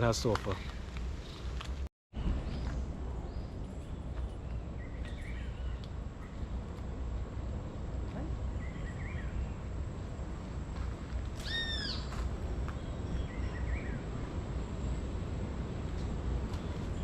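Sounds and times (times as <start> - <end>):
steady low rumble: 0.7 - 17.0
loud arched bird call: 11.4 - 12.1.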